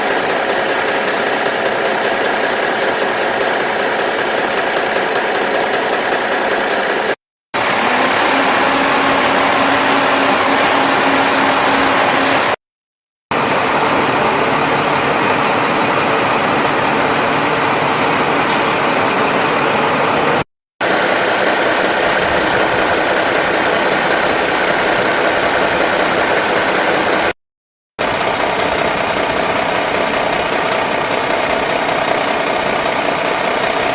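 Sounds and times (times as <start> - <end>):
excavator diesel engine running: 0.0 - 12.6, 13.3 - 27.4, 28.0 - 33.9.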